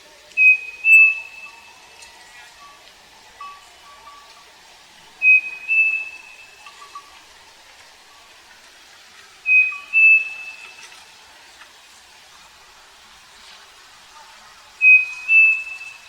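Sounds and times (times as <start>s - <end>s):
bird two-note whistled song: 0.4s - 1.8s, 5.2s - 7.1s, 9.5s - 10.8s, 14.8s - 16.0s.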